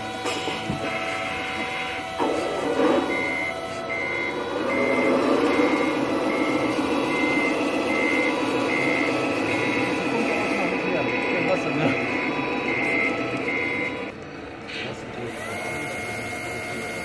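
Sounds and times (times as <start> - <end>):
reversing beeper: 0.0 - 17.0
toy truck mechanical drone: 0.0 - 17.0.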